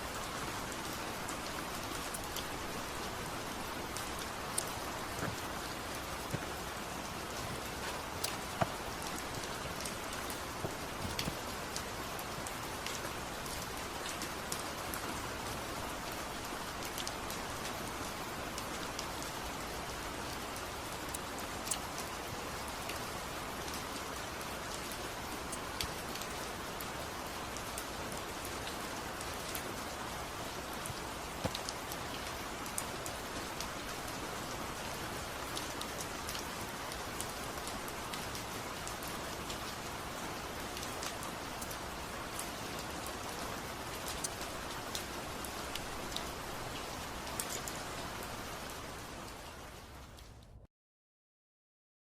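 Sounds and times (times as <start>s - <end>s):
rain falling: 0.0s - 50.6s
raindrops tapping: 0.6s - 14.4s.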